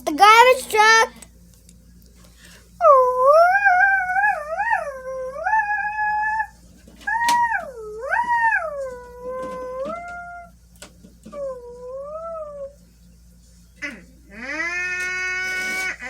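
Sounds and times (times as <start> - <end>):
dog howling: 2.8 - 10.5, 11.3 - 12.8.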